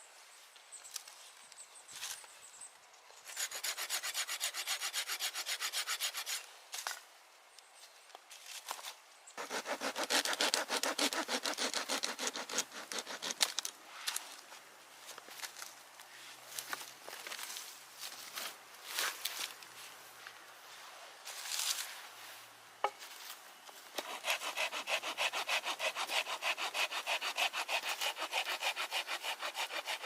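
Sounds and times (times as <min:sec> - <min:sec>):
hand saw cutting wood: 0:03.3 - 0:06.4, 0:09.4 - 0:13.6, 0:23.9 - 0:30.0.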